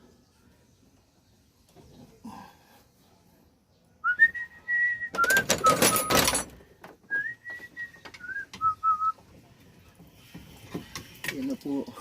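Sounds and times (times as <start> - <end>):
person whistling a slow tune: 4.0 - 5.5, 7.1 - 9.2
clattering clicks and knocks: 5.1 - 7.0.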